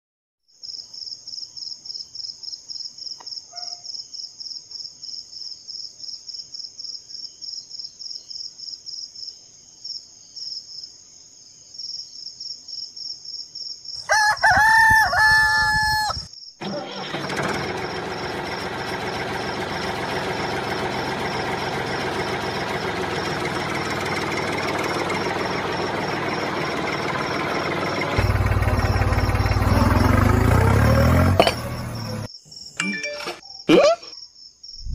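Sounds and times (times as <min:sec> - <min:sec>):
rooster crowing: 0:14.0 - 0:16.3.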